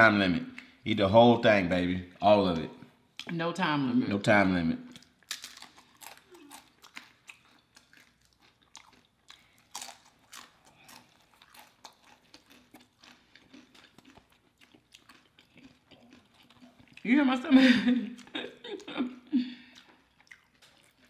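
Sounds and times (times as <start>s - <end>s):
chewing with mouth clicks: 4.9s - 17.1s, 18.0s - 21.0s
chips crunching: 5.0s - 17.0s.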